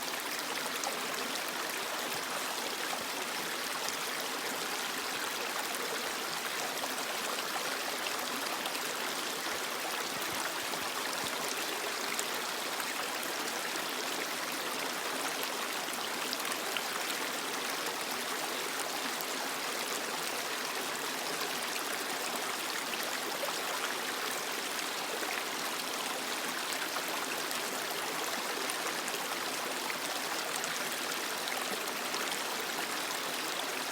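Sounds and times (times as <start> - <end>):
creek water flowing over rocks: 0.0 - 33.9.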